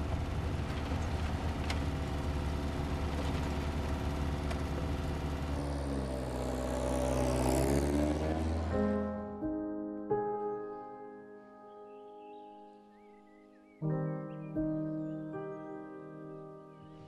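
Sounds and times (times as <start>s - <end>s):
car engine drone from inside: 0.0s - 8.8s.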